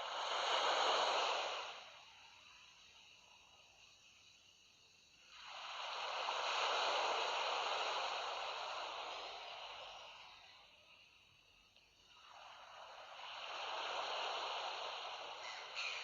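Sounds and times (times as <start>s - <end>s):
sea wave washing ashore: 0.0s - 2.1s, 5.1s - 11.0s, 12.0s - 16.0s.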